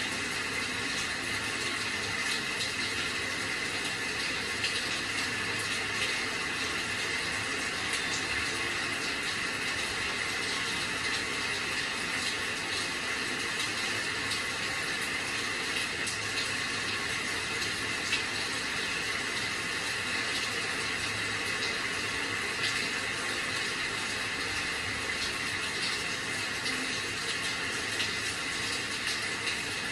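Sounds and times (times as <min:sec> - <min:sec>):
steady rain hissing: 0:00.0 - 0:29.9.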